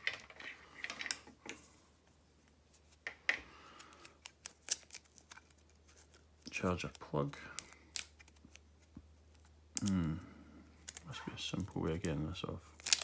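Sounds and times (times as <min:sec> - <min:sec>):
plastic packaging rustling: 0:03.7 - 0:09.5, 0:10.8 - 0:13.0.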